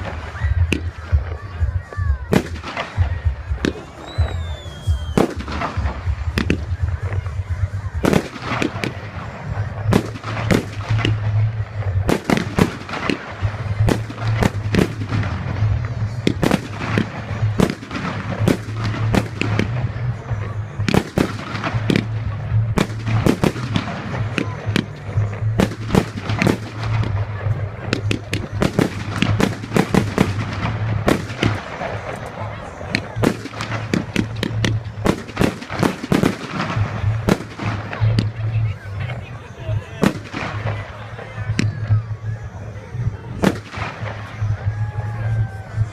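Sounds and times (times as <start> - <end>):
fireworks bangs and crackles: 0.0 - 45.9
firework falling whistle: 3.8 - 5.4.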